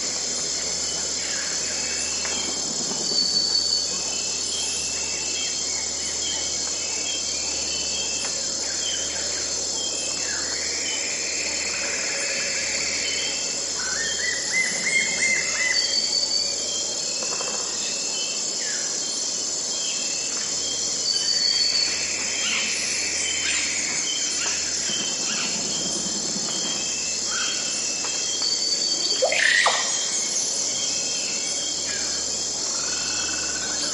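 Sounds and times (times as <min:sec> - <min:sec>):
insects chorus: 0:00.0 - 0:33.9
sweeping whistled bird phrases: 0:13.0 - 0:16.8, 0:26.8 - 0:32.2.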